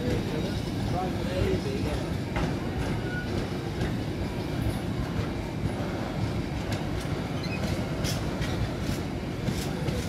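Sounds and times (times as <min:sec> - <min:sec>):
freight train rolling past: 0:00.0 - 0:10.0.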